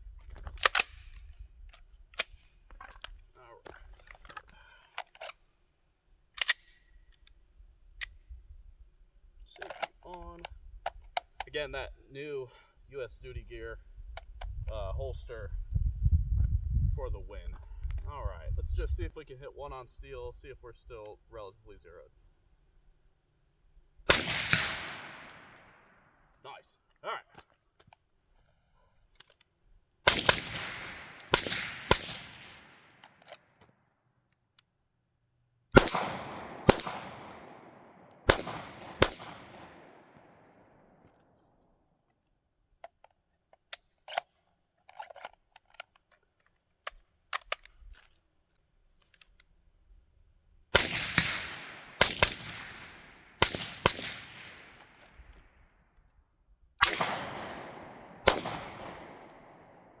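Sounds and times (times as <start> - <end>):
pistol shots echoing: 24.1 - 25.8, 30.1 - 32.9, 35.8 - 40.6, 50.7 - 54.8, 56.8 - 60.0.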